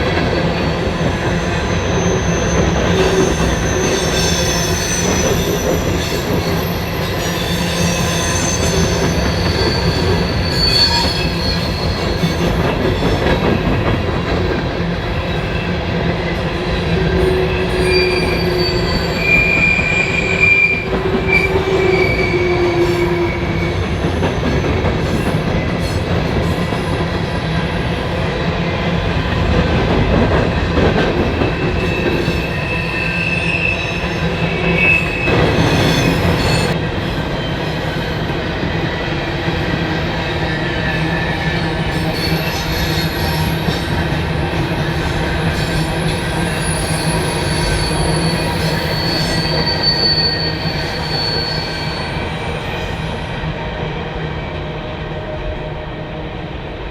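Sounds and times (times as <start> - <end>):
train wheels rumbling on rail: 0.0 - 56.9
high-pitched wheel squeal: 1.6 - 12.4, 17.5 - 23.8, 45.7 - 52.7.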